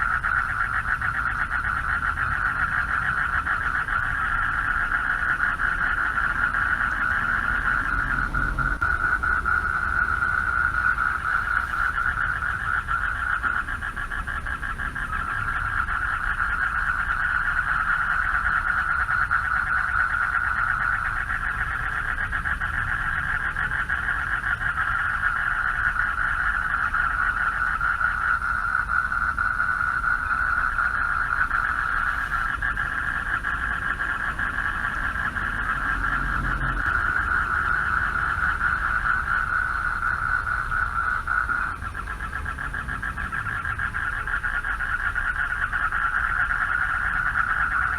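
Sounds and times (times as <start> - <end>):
chorus of frogs calling: 0.0 - 47.9
low rumble: 5.4 - 12.8.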